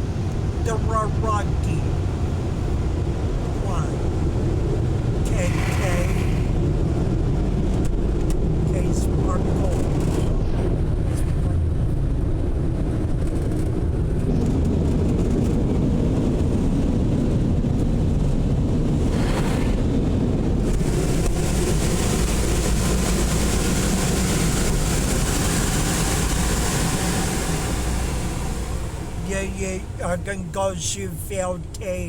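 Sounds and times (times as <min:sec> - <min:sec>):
car wash machinery rumbling: 0:00.0 - 0:19.2, 0:19.8 - 0:32.0
loud rushing hiss: 0:05.3 - 0:06.8, 0:20.6 - 0:30.0.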